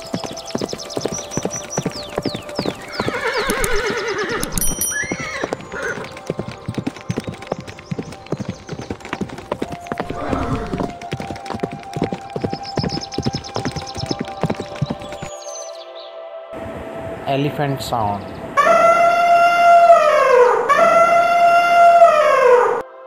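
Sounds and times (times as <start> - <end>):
hooves clip-clopping: 0.0 - 15.7
horse whinnying: 2.9 - 6.1, 10.0 - 11.0.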